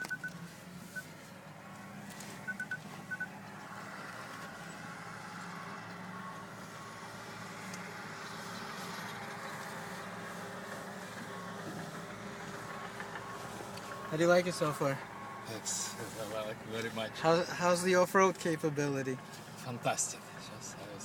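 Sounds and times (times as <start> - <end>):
high electronic beeps: 0.0 - 1.1, 2.5 - 3.3
car cabin hum: 0.0 - 5.0.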